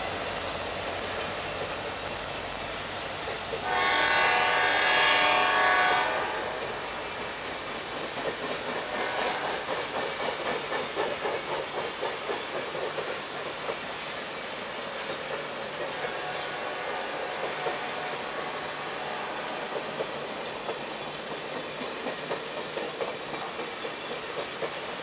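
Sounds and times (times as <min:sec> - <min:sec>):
train wheels hissing on rail: 0:00.0 - 0:25.0
wheels clacking over rail joints: 0:06.5 - 0:25.0.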